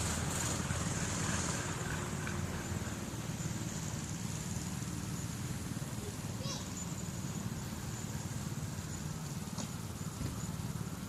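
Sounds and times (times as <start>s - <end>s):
mini bike engine running: 0.0s - 11.0s.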